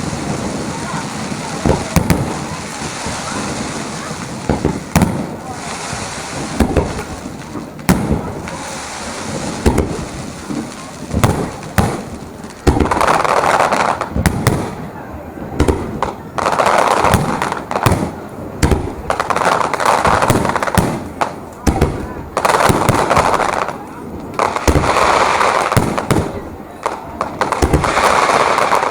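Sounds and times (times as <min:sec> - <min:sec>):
fireworks bangs: 0:00.0 - 0:28.9.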